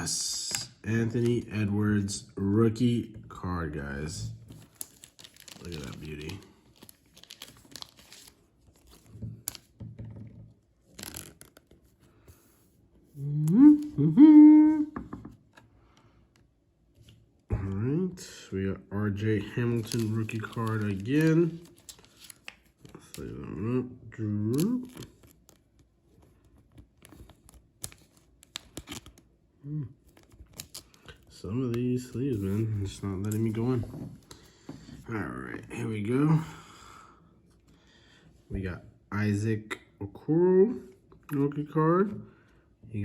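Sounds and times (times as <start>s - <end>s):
card sleeves rustling: 4.4s - 9.7s, 10.8s - 13.0s, 19.2s - 23.2s, 30.0s - 34.4s
man humming: 13.2s - 15.0s.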